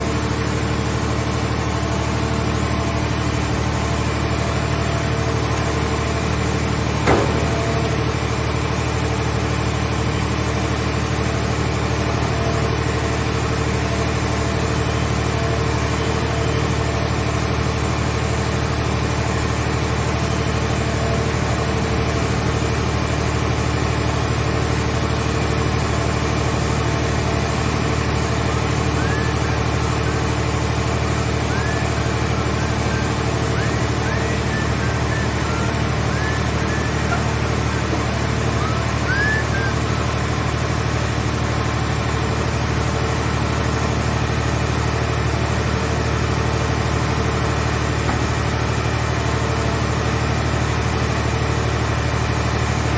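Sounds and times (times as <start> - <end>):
baler engine running: 0.0 - 52.9
sharp knock: 7.1 - 7.9.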